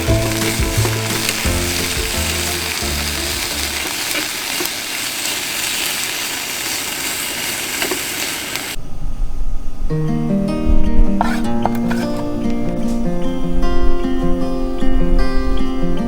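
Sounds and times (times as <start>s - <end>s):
background music: 0.0s - 3.9s
food sizzling in a pan: 0.0s - 8.8s.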